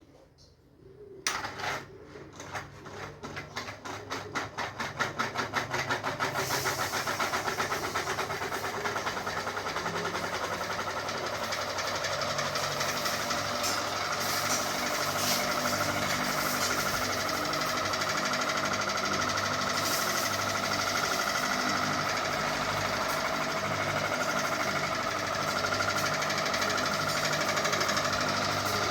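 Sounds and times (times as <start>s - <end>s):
ceiling fan whirring: 0.0s - 28.9s.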